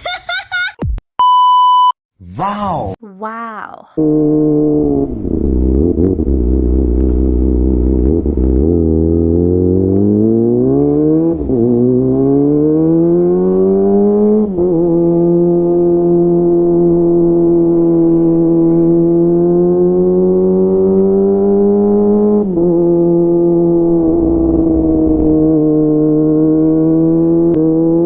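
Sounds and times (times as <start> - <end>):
motorcycle engine accelerating: 4.0 - 28.0.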